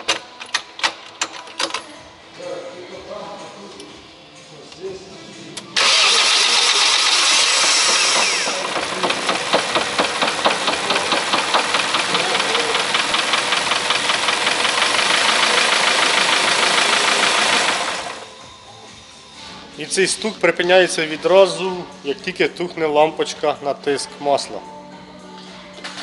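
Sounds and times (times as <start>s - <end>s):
car engine starting and running: 5.8s - 18.2s
fast regular engine knock: 7.2s - 18.1s.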